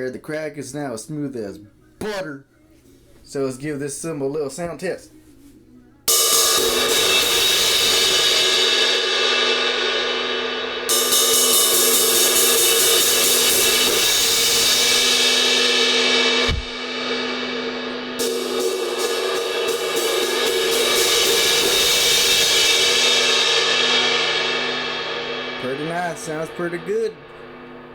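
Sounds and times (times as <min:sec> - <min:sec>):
crash cymbal ringing: 0:06.1 - 0:27.9
quick cymbal hits: 0:06.1 - 0:27.9
low thump: 0:16.4 - 0:16.8.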